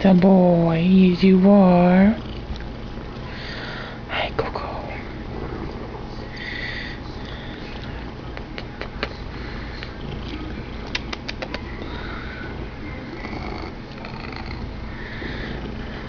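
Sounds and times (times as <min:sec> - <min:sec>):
cat purring loudly: 0:09.9 - 0:16.0.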